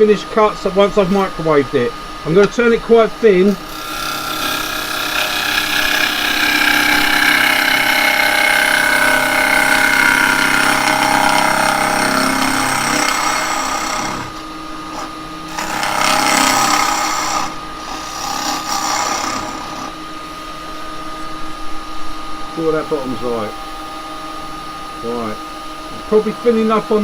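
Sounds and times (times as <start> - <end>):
lathe tool cutting wood: 0.0 - 20.5
lathe whine: 0.0 - 27.0.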